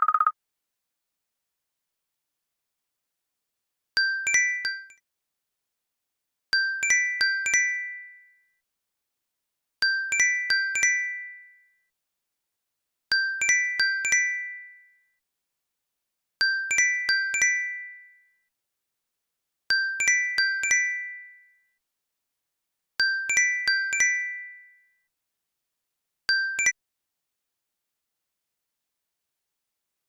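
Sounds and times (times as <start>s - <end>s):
bell-like phone ringtone: 0.0s - 0.4s.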